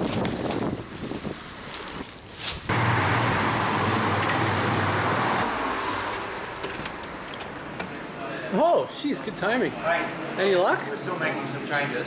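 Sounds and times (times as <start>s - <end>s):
vehicle engine humming: 0.0s - 8.2s.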